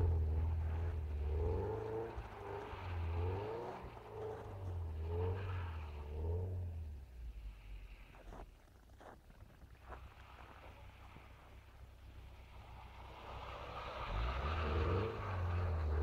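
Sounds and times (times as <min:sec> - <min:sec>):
car engine revving: 0:00.0 - 0:07.0, 0:12.5 - 0:16.0.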